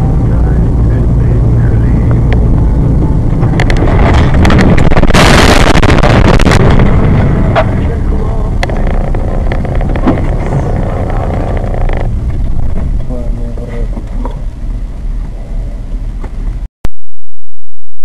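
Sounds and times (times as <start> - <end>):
road and engine rumble: 0.0 - 16.7
rapid cracking and clattering: 3.3 - 14.6.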